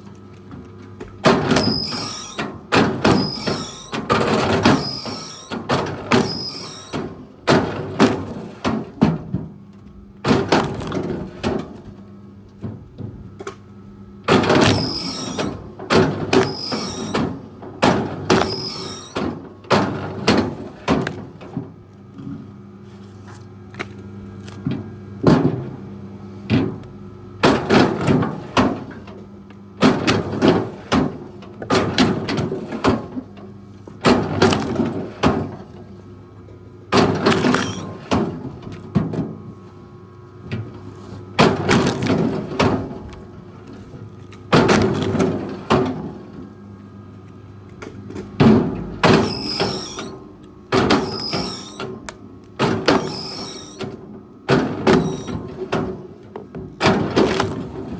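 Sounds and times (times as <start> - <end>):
heavy machine engine running: 1.2 - 9.0, 14.2 - 20.9, 54.5 - 56.2.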